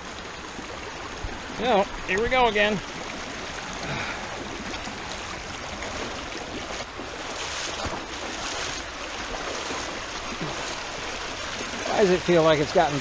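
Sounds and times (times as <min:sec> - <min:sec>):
floodwater rushing in creek: 0:00.0 - 0:13.0
splashing of person wading: 0:02.7 - 0:13.0.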